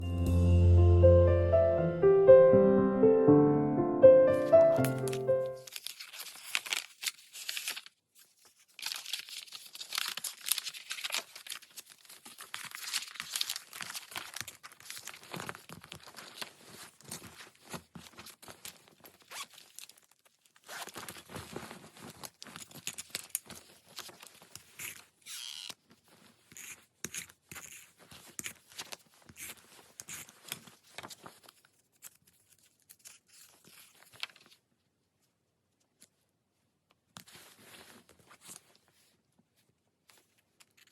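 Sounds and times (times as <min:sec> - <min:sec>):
paper sheets rustling: 0:04.4 - 0:19.9, 0:28.0 - 0:34.6, 0:37.2 - 0:39.2
paper tearing: 0:04.8 - 0:17.3.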